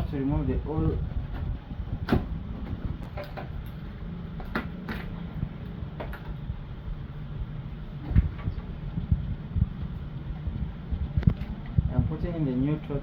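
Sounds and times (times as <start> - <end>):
low rumble: 0.0 - 12.9.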